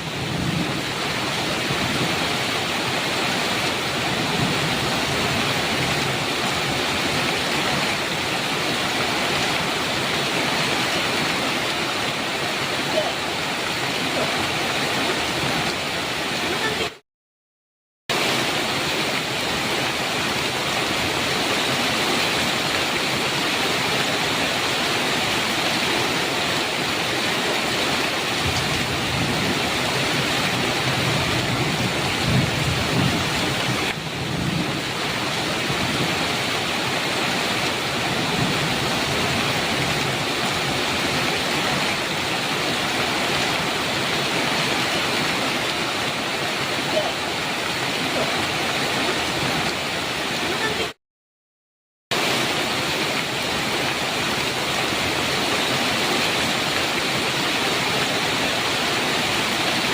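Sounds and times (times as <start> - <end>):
thunder rumbling: 0.0 - 2.3, 28.3 - 36.5
heavy rain: 0.0 - 17.0, 18.1 - 51.0, 52.1 - 59.9.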